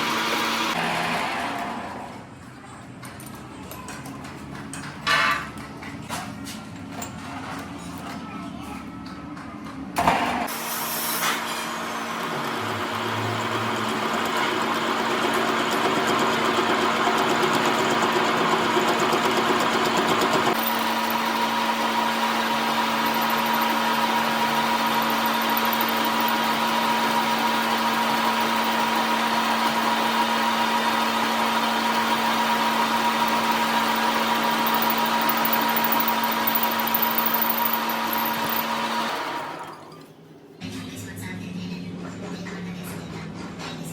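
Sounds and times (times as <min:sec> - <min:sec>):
motor-driven machine running: 0:15.0 - 0:30.1, 0:31.0 - 0:39.5.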